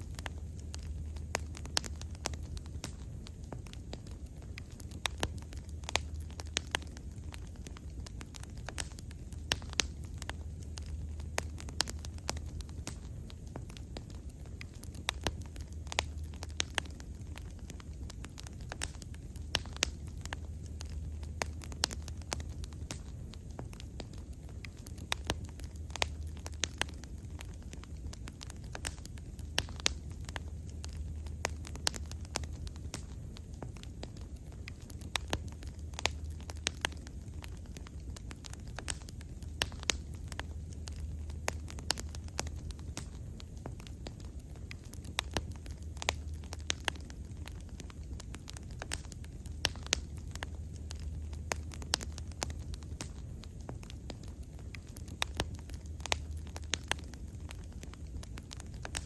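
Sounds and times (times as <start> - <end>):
bonfire crackling and popping: 0.0 - 59.0
low rumble of flames: 0.0 - 59.0.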